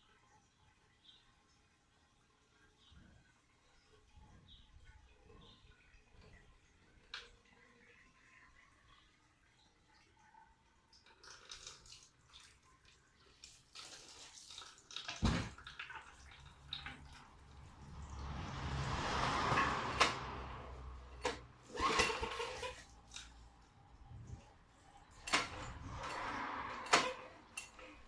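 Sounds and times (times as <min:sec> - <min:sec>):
water pouring and splashing: 0:05.8 - 0:28.0.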